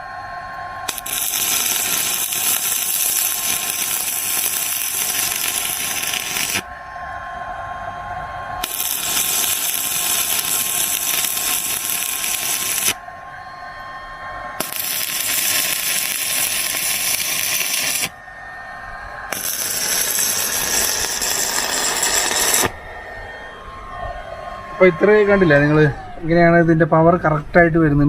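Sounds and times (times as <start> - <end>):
welding arc crackling and hissing: 0.9 - 6.7, 8.6 - 13.0, 14.6 - 18.2, 19.3 - 22.8.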